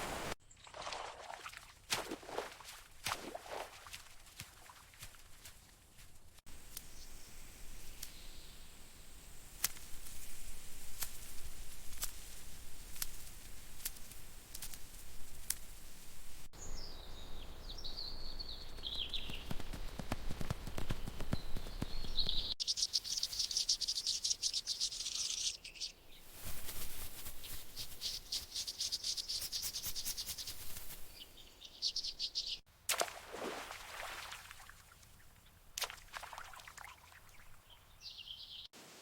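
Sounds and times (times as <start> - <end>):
bird warbling call: 22.0 - 26.0
high-pitched insect trill: 22.6 - 25.8.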